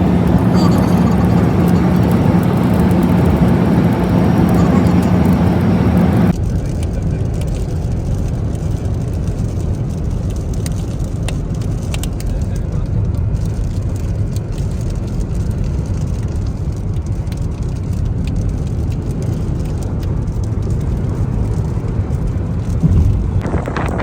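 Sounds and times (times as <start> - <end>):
car rumbling on road: 0.0 - 9.2, 16.4 - 24.0.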